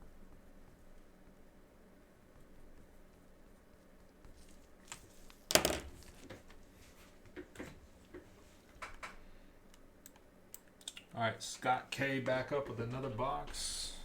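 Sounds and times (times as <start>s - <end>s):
trading cards clicking and tapping: 4.8s - 6.4s.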